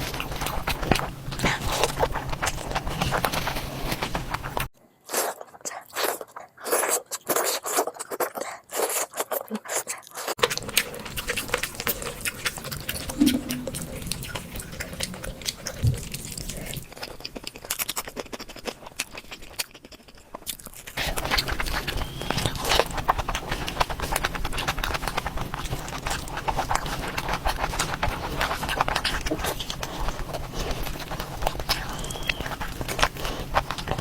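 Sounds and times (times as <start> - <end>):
person chewing and crunching: 0.0 - 34.0.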